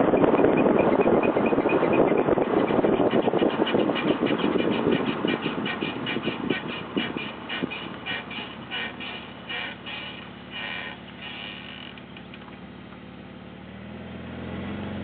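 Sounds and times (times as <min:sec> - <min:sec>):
brakes scraping rhythmically: 0:00.0 - 0:15.0
road noise: 0:00.0 - 0:15.0.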